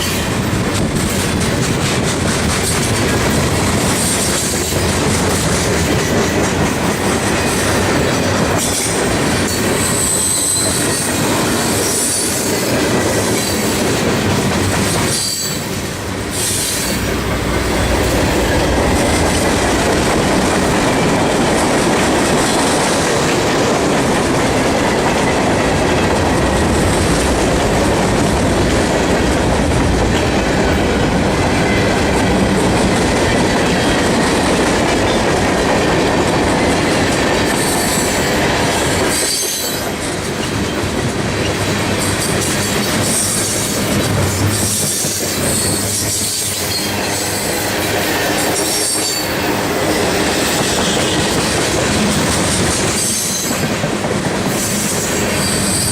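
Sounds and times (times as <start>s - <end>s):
clacking over rail joints: 0.0s - 15.9s
freight train wheels rumbling: 0.0s - 55.9s
high-pitched wheel squeal: 9.8s - 11.1s.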